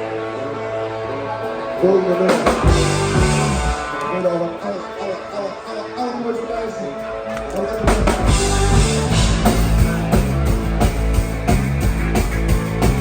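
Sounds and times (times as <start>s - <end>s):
rock band playing: 0.0s - 5.4s, 7.0s - 13.0s
guitar: 0.0s - 13.0s
drums and bass: 2.2s - 4.0s, 7.7s - 13.0s.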